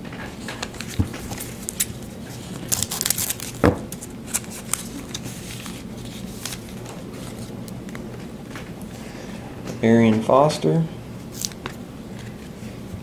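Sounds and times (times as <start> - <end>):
wrapper crinkling and tearing: 0.8 - 7.5, 11.3 - 11.6.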